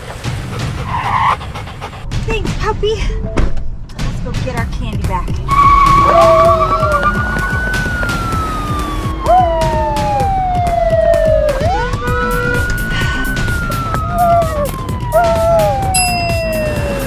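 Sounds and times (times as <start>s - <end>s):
siren wailing: 5.5s - 17.0s.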